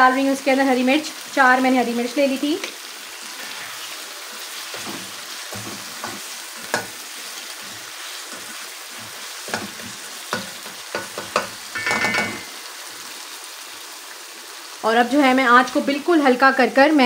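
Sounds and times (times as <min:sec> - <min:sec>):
meat sizzling in a wok: 0:00.0 - 0:17.0
spatula knocking and scraping pan: 0:04.7 - 0:12.6.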